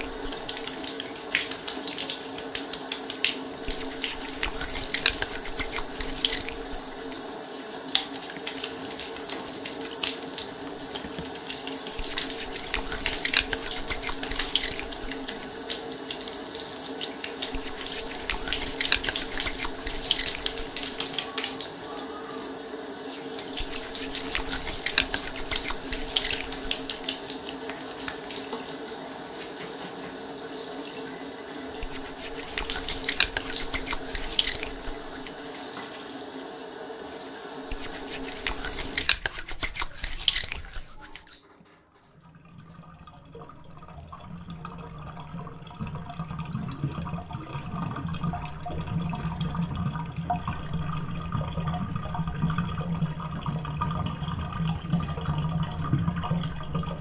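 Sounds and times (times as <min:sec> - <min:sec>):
shower water running and splashing: 0:00.0 - 0:41.4.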